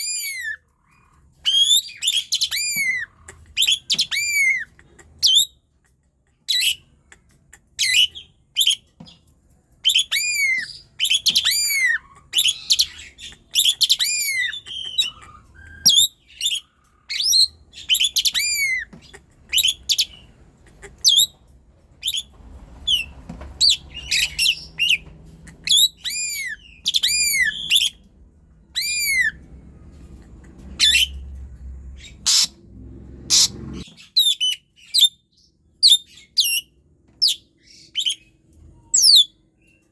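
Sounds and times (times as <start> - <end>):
starling singing: 9.8 - 21.4, 22.0 - 29.6, 30.7 - 31.2.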